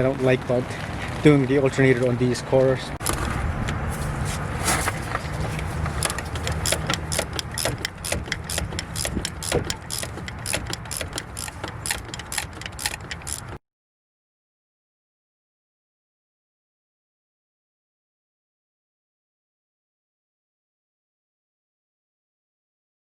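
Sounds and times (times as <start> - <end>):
ratchet wrench clicking: 6.0 - 13.6.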